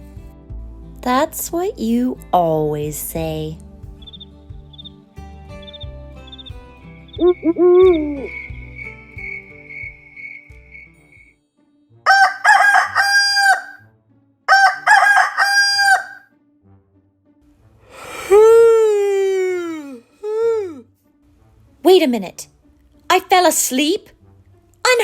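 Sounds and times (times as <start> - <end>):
soft music: 0.0 - 25.0
rooster crowing: 12.1 - 13.8, 14.5 - 16.3.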